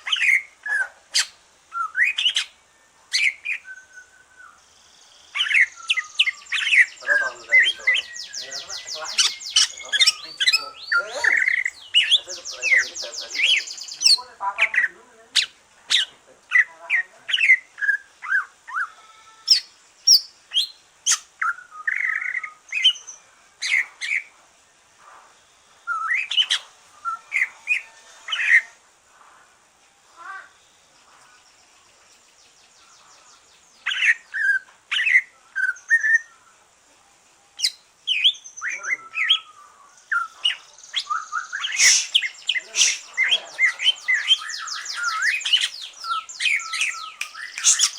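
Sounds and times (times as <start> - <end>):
bird chirping and whistling: 1.2 - 2.5, 3.2 - 4.6, 5.4 - 14.2, 37.6 - 47.9.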